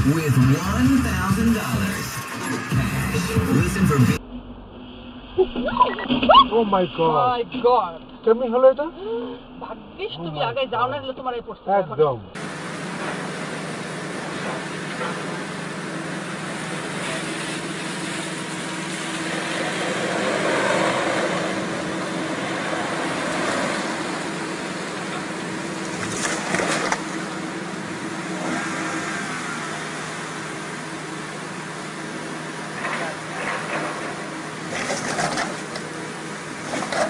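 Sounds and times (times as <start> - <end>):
vehicle and road noise: 0.0 - 37.0.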